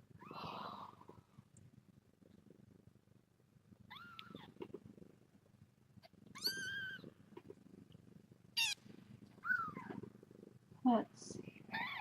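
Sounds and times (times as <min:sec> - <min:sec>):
cat purring: 0:00.0 - 0:12.0
kittens meowing: 0:06.3 - 0:07.1, 0:08.6 - 0:08.8.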